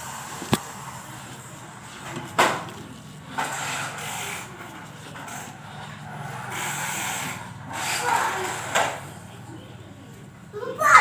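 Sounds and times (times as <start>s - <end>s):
gas torch flame hissing: 0.0s - 2.6s, 5.2s - 9.1s.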